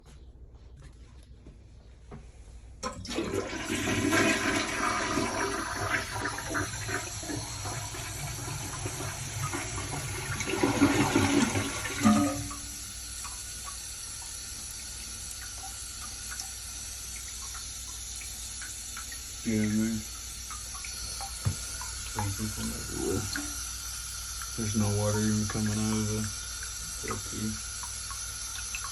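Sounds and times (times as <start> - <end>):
toilet flushing: 2.8 - 28.9
water draining with gurgle: 2.8 - 28.9
hiss of running water: 3.1 - 28.9.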